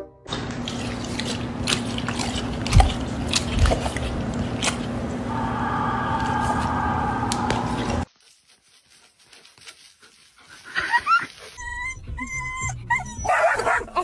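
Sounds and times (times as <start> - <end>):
dog whimpering: 10.9 - 14.0
dog whining: 11.1 - 14.0.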